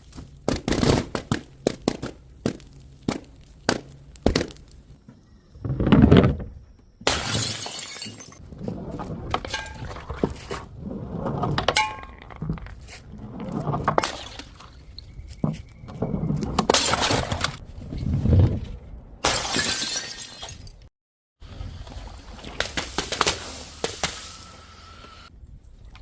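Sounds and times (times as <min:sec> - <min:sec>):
glass bottles shattering: 0:07.1 - 0:08.4, 0:14.0 - 0:14.8, 0:19.2 - 0:20.8.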